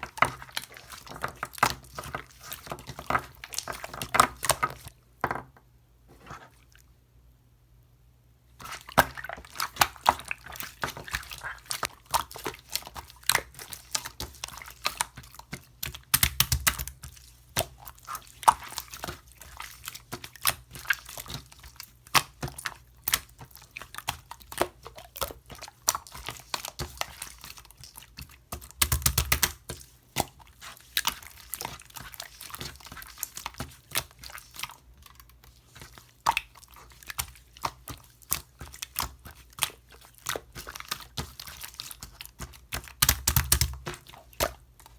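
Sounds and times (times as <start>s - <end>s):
slime squelching: 0.0s - 5.0s, 6.1s - 6.9s, 8.5s - 44.9s
slime clicking and popping: 15.9s - 17.0s, 28.5s - 29.6s, 42.9s - 43.9s.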